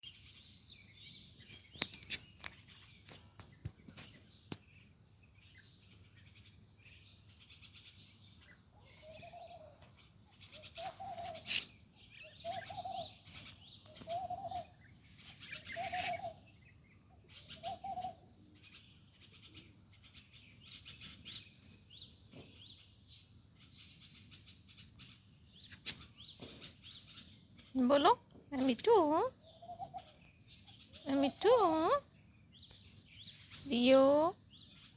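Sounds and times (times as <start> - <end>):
parrot chirping and twittering: 10.4 - 16.5.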